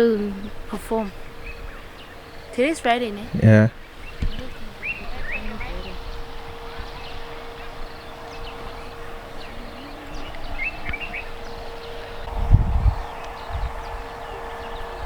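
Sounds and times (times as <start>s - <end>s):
birds chirping: 0.0s - 15.0s
steady faint whine: 0.0s - 15.0s
low rumble on microphone: 3.4s - 15.0s.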